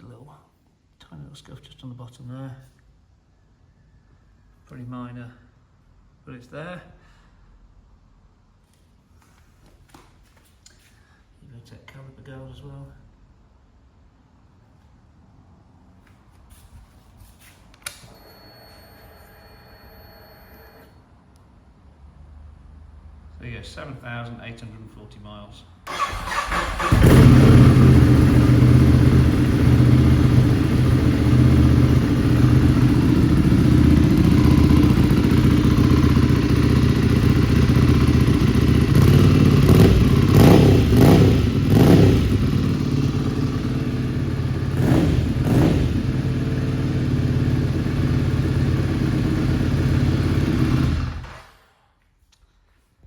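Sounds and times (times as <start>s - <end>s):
motorcycle engine idling and revving: 25.9s - 51.6s.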